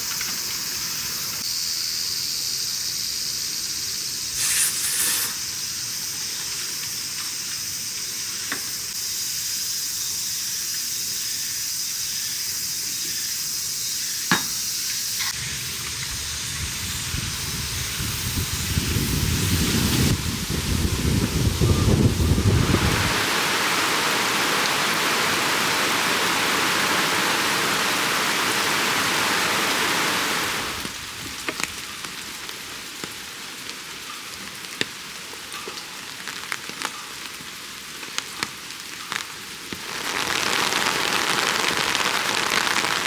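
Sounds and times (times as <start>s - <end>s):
heavy rain pouring: 15.3s - 43.0s.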